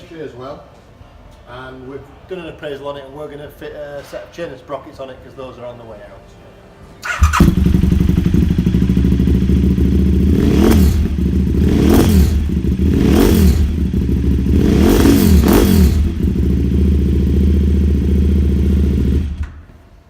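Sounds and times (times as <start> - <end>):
motorcycle engine idling and revving: 7.0 - 19.6.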